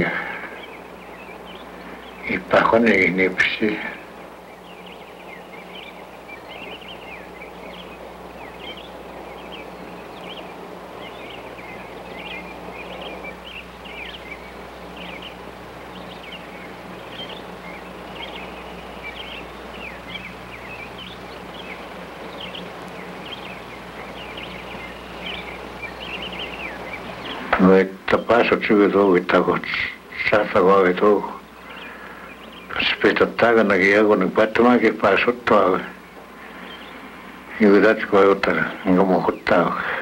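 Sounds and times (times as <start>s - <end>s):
small birds chirping: 0.0s - 40.0s
steady low hum: 0.0s - 40.0s.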